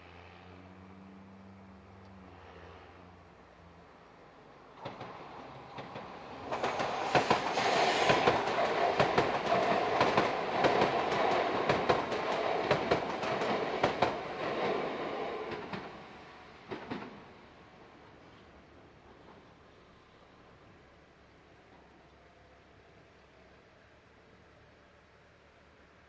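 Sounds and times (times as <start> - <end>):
train rumble: 4.0 - 22.0
train wheels clicking over rail joints: 4.8 - 17.3.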